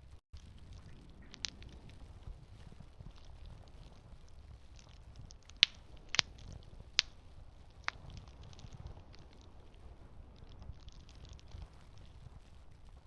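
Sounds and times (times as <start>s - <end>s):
campfire crackling: 0.0s - 13.0s
sharp pops from fire: 0.4s - 13.0s.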